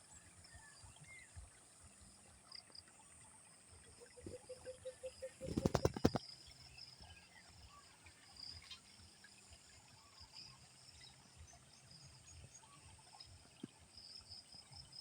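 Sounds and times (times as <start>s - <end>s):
insects chirring: 4.0s - 7.0s.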